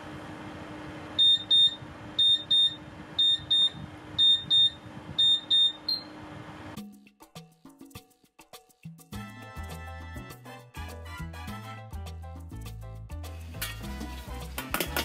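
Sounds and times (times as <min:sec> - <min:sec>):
oven timer double beeps: 0:01.2 - 0:06.2.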